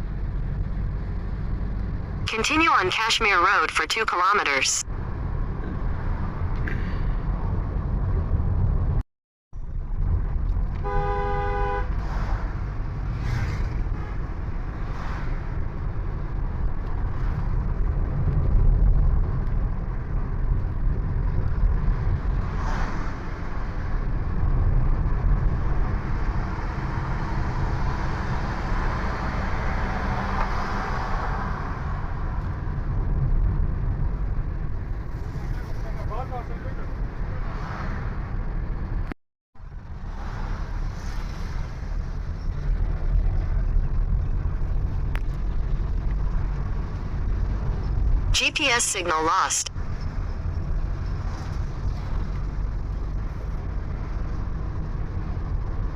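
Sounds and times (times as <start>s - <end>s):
road and wind rumble: 0.0s - 55.9s
vehicle horn: 10.8s - 12.0s.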